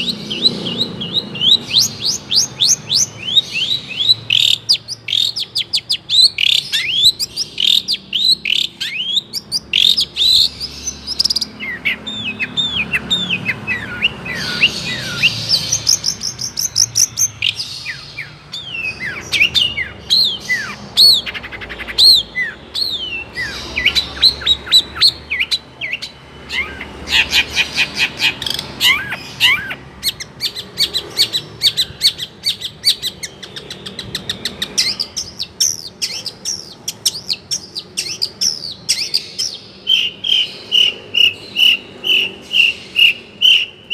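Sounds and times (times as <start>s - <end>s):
bird singing varied song: 0.0s - 43.9s.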